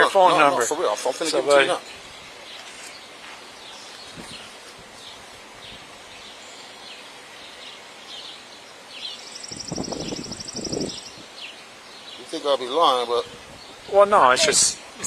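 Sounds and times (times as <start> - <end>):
small birds chirping: 0.0 - 15.0
muffled rustle: 1.8 - 6.0.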